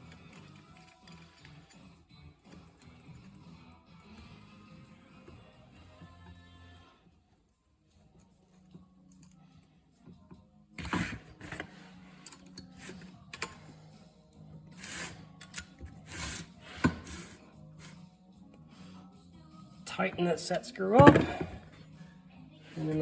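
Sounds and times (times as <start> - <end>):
metal tools clicking and clinking: 15.3 - 15.8.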